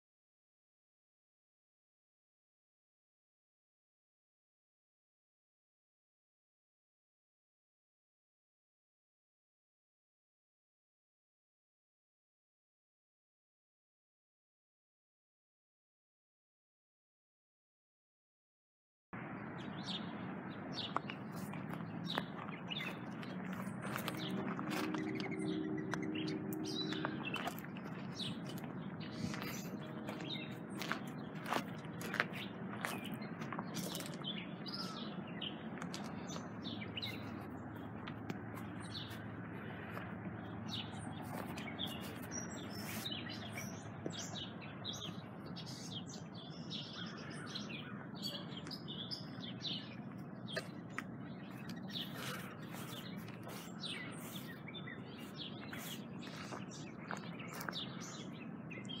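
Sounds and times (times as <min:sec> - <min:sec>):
birds chirping: 0:19.2 - 0:59.0.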